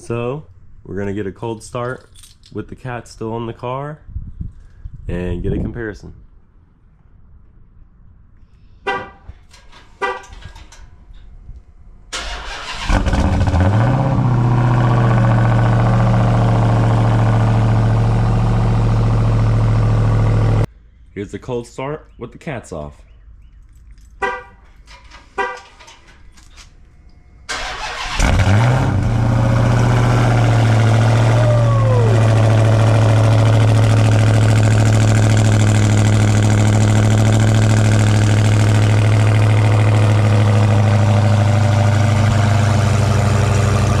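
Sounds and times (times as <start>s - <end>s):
car engine loud idle: 28.1s - 44.0s.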